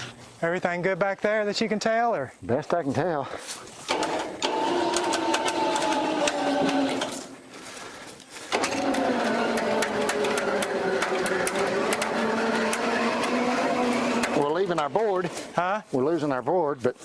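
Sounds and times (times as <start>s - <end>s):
electric winch motor whining: 3.9s - 7.4s, 8.5s - 15.6s.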